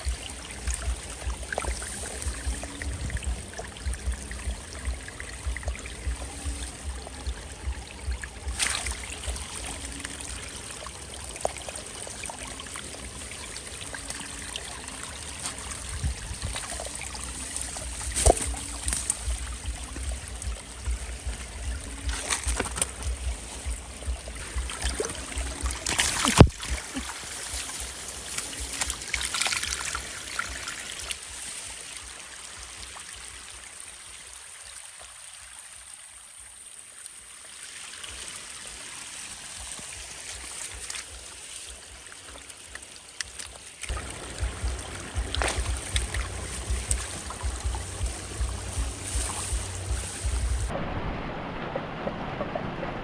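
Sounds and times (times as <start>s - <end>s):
knocks and splashes: 0.0s - 14.4s, 15.2s - 31.2s, 42.4s - 53.0s
water trickling: 0.0s - 53.0s.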